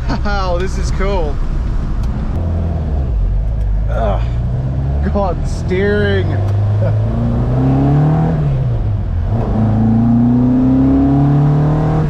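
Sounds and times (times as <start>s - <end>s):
car engine accelerating: 0.6s - 12.0s.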